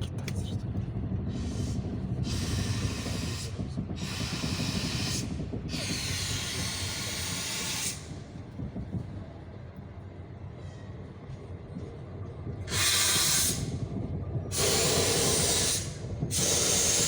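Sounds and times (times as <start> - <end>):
train wheels rumbling on rails: 0.0 - 17.0
train brakes hissing: 1.3 - 8.2, 12.7 - 13.8, 14.5 - 17.0.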